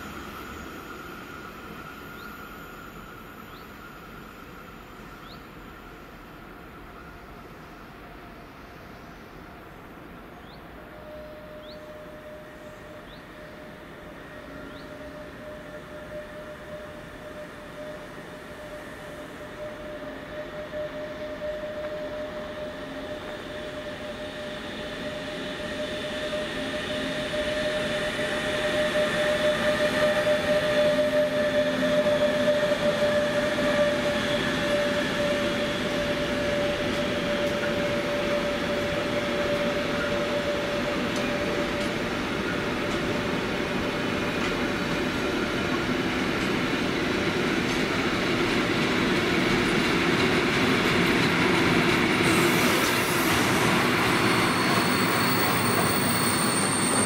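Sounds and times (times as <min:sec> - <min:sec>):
high-pitched whine: 0:11.0 - 0:45.5, 0:52.2 - 0:57.0.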